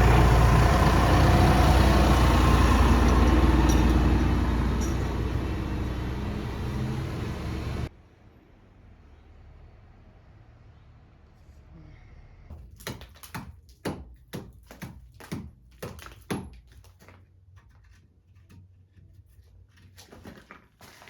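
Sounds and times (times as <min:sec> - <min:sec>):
low steady rumble: 0:00.0 - 0:11.1.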